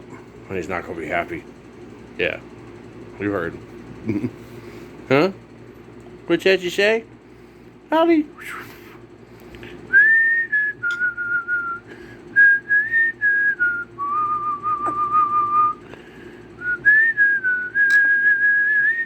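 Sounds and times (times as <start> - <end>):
person whistling notes: 9.9 - 11.8, 12.4 - 15.8, 16.6 - 19.0.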